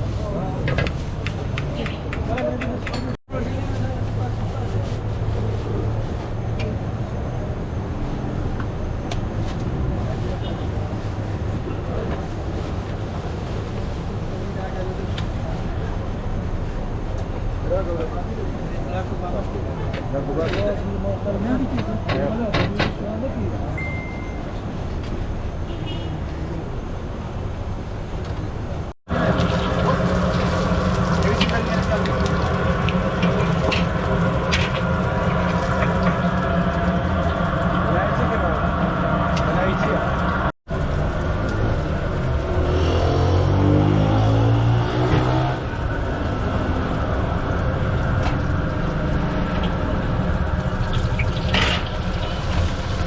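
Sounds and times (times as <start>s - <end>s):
traffic noise: 0.0s - 53.0s
vehicle engine revving up: 41.2s - 47.5s.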